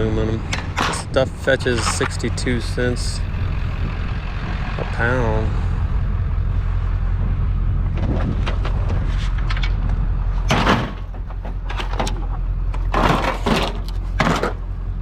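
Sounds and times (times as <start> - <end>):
steady low rumble: 0.0 - 15.0
metal scraping clatters: 0.4 - 2.8, 7.9 - 14.6.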